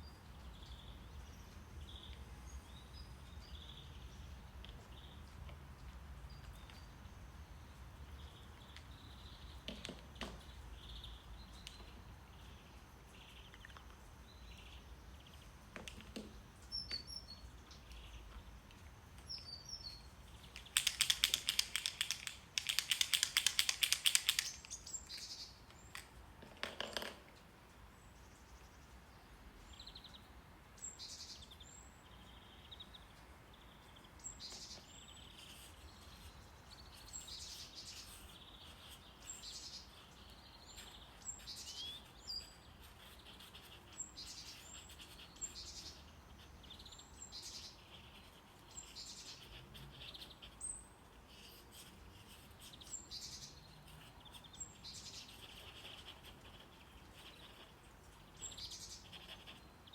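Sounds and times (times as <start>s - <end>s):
birds chirping and trilling: 6.3s - 18.6s, 29.6s - 59.9s.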